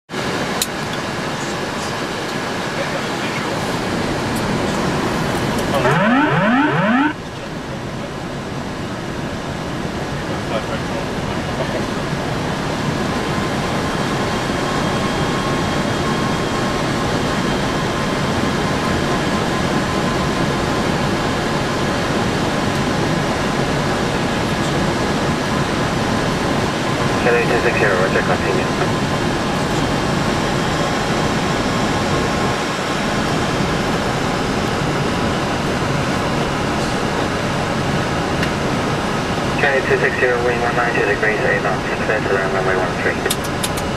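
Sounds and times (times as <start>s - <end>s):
faint steady tones: 5.8s - 7.2s.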